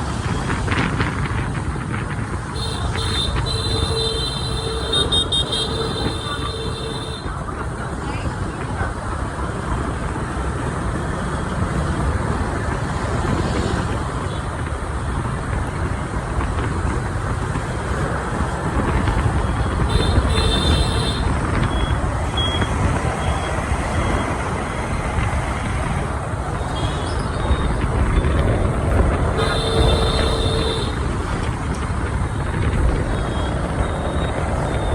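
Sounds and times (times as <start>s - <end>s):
city street traffic: 0.0s - 34.9s
motorbike engine: 2.6s - 7.4s, 16.6s - 33.5s.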